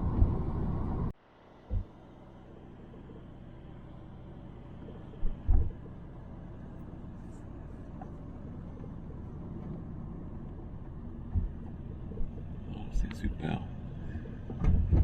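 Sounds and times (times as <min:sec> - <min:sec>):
car road rumble: 0:00.0 - 0:15.0.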